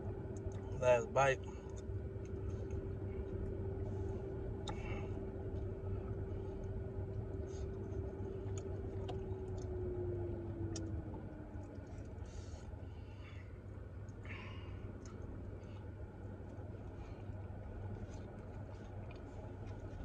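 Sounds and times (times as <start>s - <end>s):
car cabin hum: 0.0s - 20.0s
person chewing sandwich: 14.8s - 20.0s.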